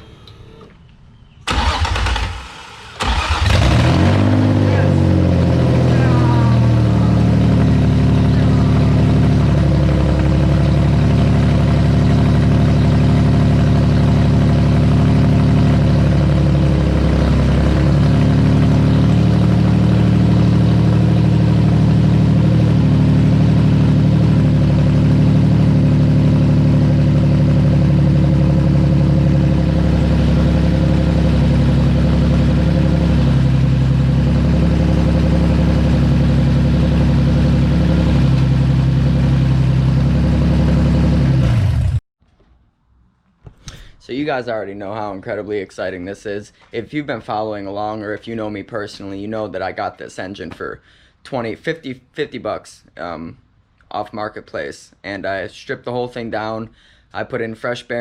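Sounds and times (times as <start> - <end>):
engine idling loudly: 3.0 - 42.0.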